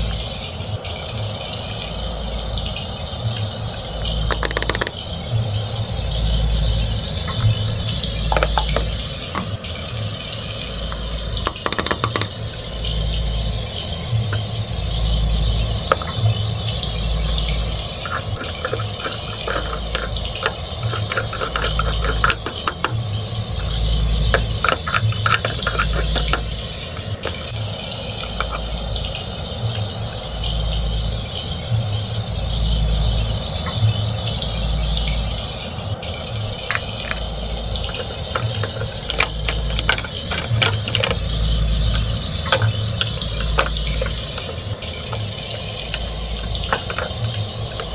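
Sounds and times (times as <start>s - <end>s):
steady hiss: 0.0s - 47.9s
plastic toy cookware clicking: 4.3s - 5.0s, 8.2s - 9.6s, 10.9s - 12.5s, 15.9s - 16.3s, 17.9s - 28.8s, 36.6s - 47.9s.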